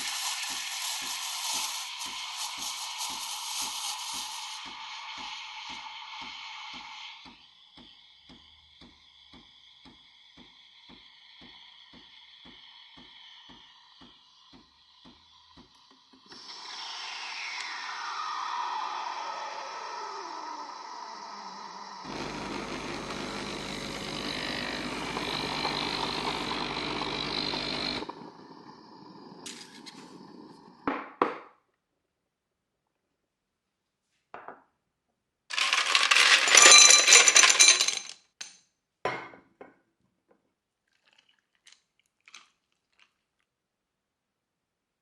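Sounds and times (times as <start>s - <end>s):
ice clinking against glass: 35.5s - 38.2s.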